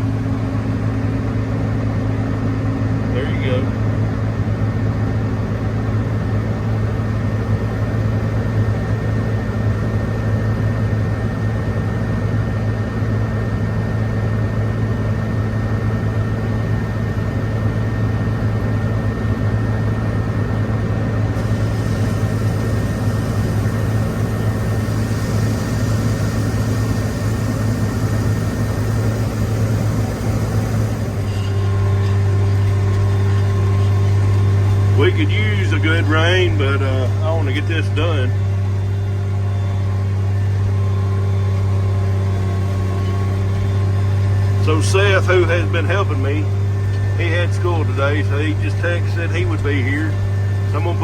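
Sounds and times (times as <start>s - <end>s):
thin steady whine: 0.0s - 51.0s
tractor diesel engine running: 0.0s - 51.0s
hiss: 21.4s - 31.1s.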